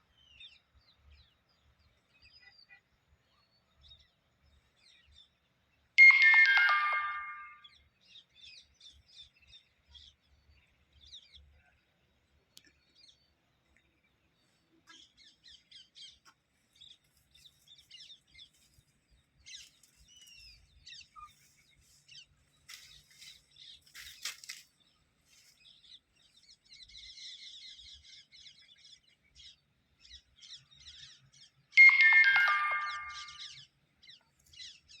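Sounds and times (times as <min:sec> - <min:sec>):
faint high bird chirps: 0:02.0 - 0:04.2, 0:19.4 - 0:24.6, 0:26.5 - 0:35.0
electronic chime falling notes: 0:06.0 - 0:07.6, 0:31.8 - 0:33.5.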